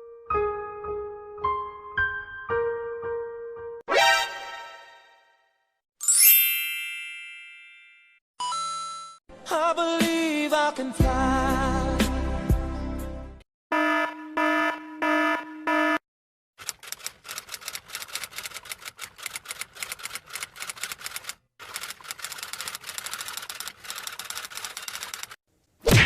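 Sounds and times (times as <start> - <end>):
typewriter keystrokes: 16.6 - 25.4.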